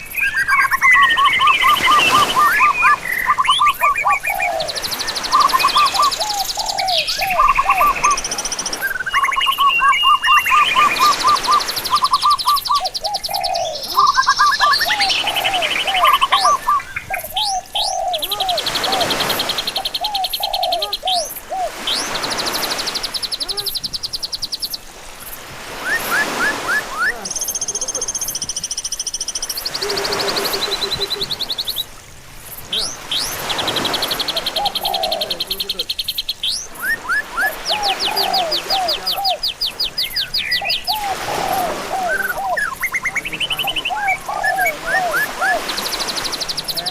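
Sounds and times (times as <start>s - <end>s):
birds chirping and singing: 0.0s - 24.8s, 32.6s - 46.9s.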